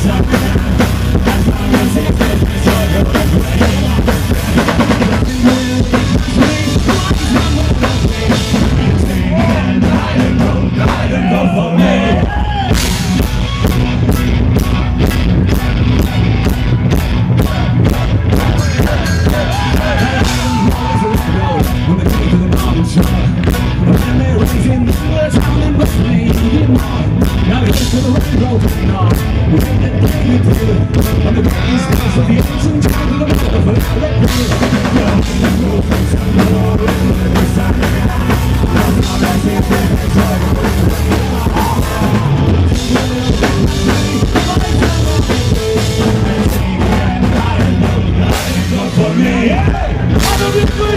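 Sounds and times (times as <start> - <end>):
drum kit beat: 0.0 - 50.9
folk-rock band playing: 0.0 - 50.9.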